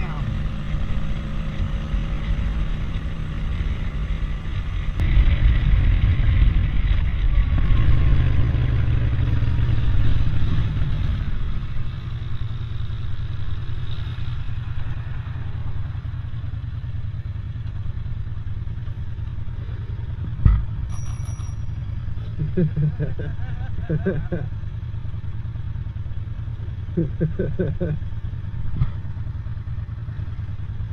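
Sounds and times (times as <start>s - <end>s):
motor vehicle passing: 0.0s - 17.0s
steady low rumble: 0.0s - 20.9s, 21.8s - 30.9s.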